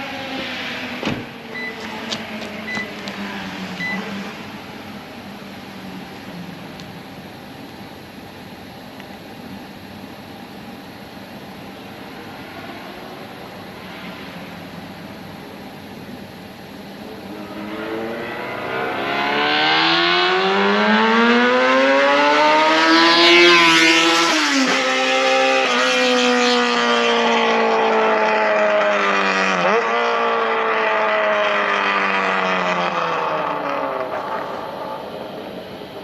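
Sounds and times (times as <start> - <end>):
motorcycle engine accelerating: 11.6 - 36.0.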